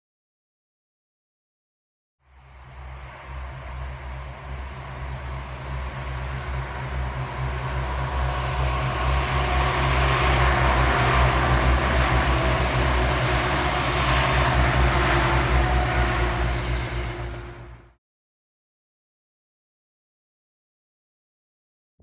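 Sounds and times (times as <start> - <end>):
low rumble: 2.3 - 18.0
train passing: 2.3 - 18.0.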